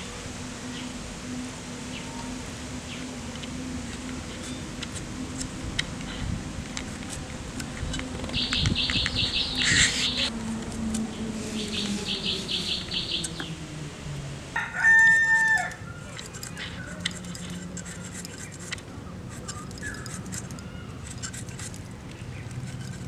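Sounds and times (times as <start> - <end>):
bird chirping rapidly: 8.3 - 10.3, 11.6 - 13.6
rooster crowing: 14.4 - 17.0.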